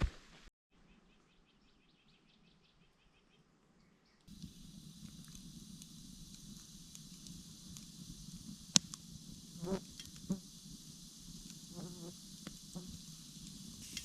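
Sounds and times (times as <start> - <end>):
high insect hum: 4.3 - 14.0.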